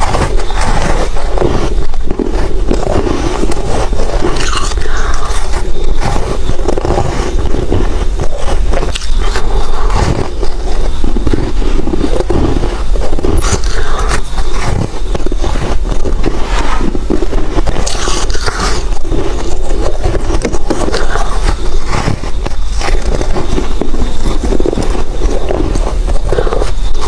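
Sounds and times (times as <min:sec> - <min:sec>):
ice squeaky scraping: 0:00.0 - 0:27.0
chewing ice crunching: 0:02.2 - 0:10.3, 0:13.2 - 0:14.9, 0:17.1 - 0:26.6.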